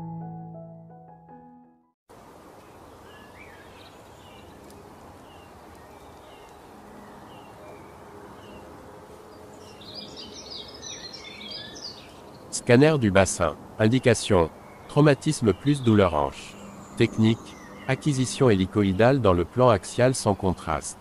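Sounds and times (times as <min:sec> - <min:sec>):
steady background hiss: 0:02.1 - 0:07.7
small birds chirping: 0:02.6 - 0:08.7, 0:09.3 - 0:21.0.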